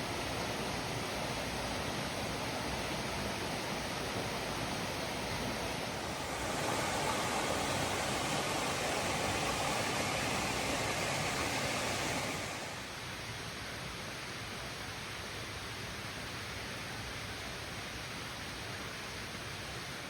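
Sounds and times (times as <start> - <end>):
waterfall rushing: 0.8 - 12.9.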